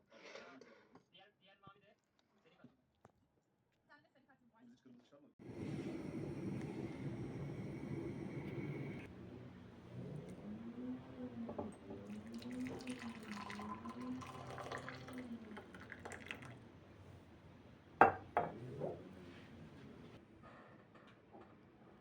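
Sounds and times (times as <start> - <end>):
tap water running into sink: 11.3 - 16.6.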